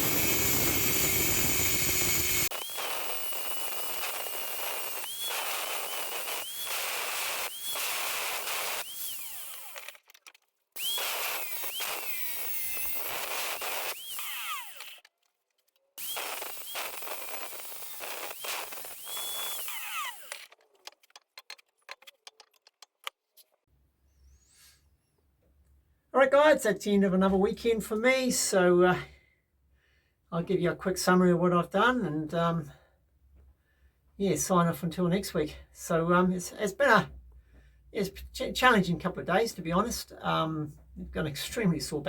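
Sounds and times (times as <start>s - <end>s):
power tool motor whining: 0.0s - 10.0s, 10.8s - 15.1s, 16.0s - 20.6s.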